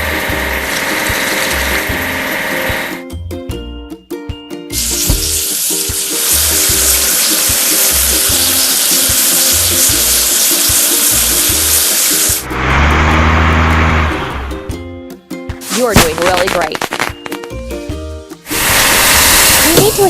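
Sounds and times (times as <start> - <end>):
music with steady beat: 1.5 - 7.1, 16.8 - 18.5
water spray hissing: 4.7 - 12.4, 18.4 - 20.0.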